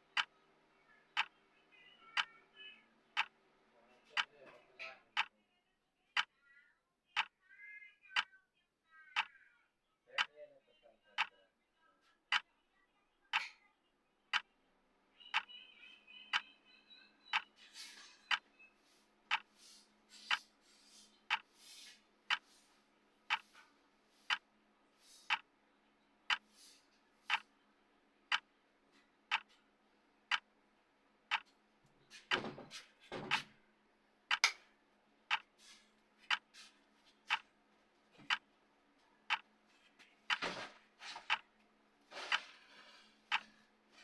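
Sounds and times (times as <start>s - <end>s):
clock ticking: 0.1s - 0.3s, 2.2s - 2.4s, 3.2s - 3.4s, 4.1s - 4.4s, 7.2s - 7.4s, 9.2s - 9.4s, 11.2s - 11.4s, 12.3s - 12.5s, 17.3s - 17.5s, 19.3s - 19.5s, 21.3s - 21.5s, 22.3s - 22.5s, 23.3s - 23.6s, 24.2s - 24.4s, 25.2s - 25.5s, 26.3s - 26.5s, 27.3s - 27.5s, 28.3s - 28.5s, 29.3s - 29.6s, 30.3s - 30.5s, 31.3s - 31.6s, 32.3s - 32.5s, 34.3s - 34.6s, 35.3s - 35.6s, 36.2s - 36.5s, 37.3s - 37.5s, 38.2s - 38.5s, 39.3s - 39.5s, 40.3s - 40.5s, 41.3s - 41.5s, 43.3s - 43.6s.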